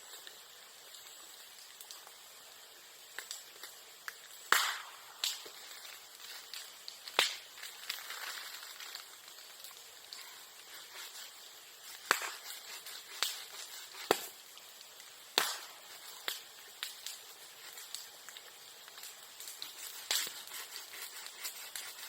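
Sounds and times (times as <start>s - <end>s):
bonfire crackling: 0.0s - 22.0s
bamboo stems bursting: 3.2s - 22.0s.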